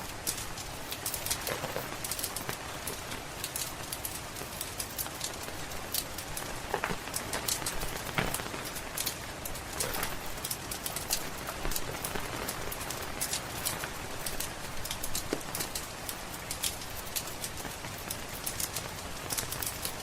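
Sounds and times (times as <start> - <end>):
steady rain: 0.0 - 20.0
wood fire crackling: 0.0 - 20.0.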